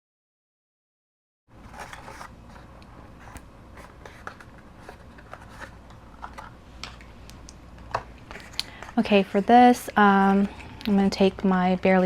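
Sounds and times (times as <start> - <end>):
low room hum: 1.5 - 12.0.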